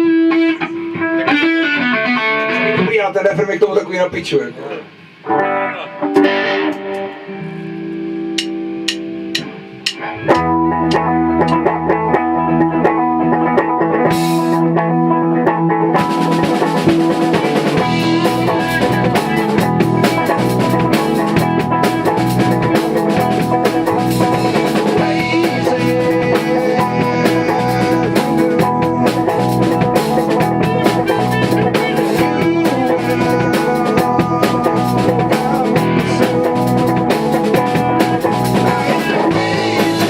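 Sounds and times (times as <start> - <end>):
rock band playing: 0.0 - 40.0
held guitar chord: 5.3 - 13.4.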